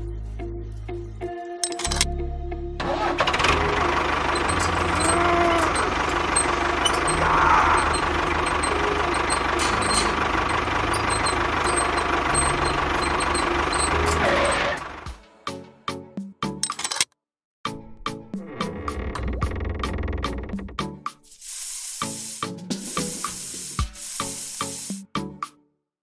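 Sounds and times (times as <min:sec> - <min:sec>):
engine chugging: 0:02.9 - 0:15.2.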